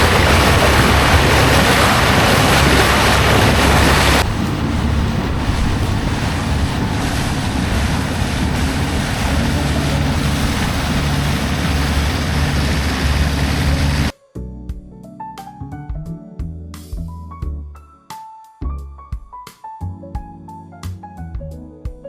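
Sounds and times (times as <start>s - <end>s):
boat engine running: 0.0s - 14.1s
rushing water: 0.0s - 14.1s
wind noise on microphone: 0.0s - 14.1s
piano music: 14.4s - 22.0s.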